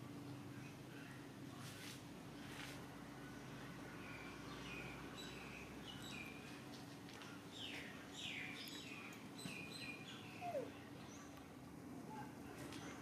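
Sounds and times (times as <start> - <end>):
steady low hum: 0.0 - 13.0
small birds chirping: 3.9 - 11.6.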